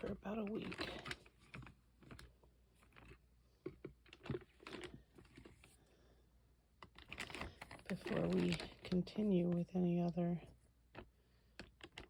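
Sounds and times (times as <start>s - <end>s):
plastic bag crinkling: 0.0s - 3.2s, 6.8s - 9.7s.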